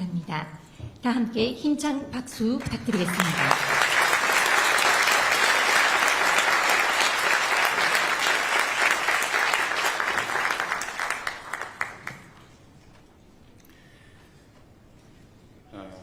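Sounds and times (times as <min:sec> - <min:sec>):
audience applauding: 0:02.6 - 0:12.6.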